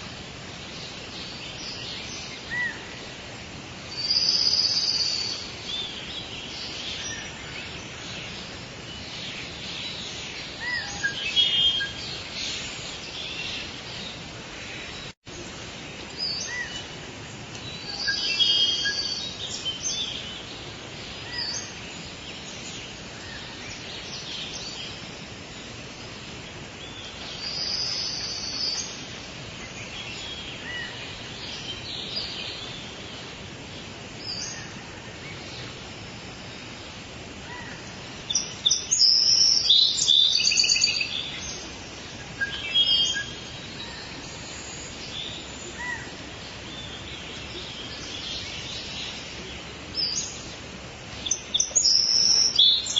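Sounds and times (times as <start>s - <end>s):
steady background hiss: 0.0s - 52.9s.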